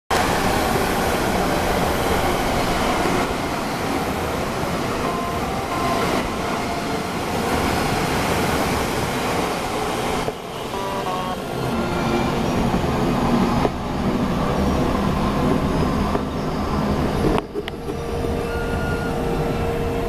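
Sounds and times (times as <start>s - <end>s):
train rushing past: 0.1s - 20.0s.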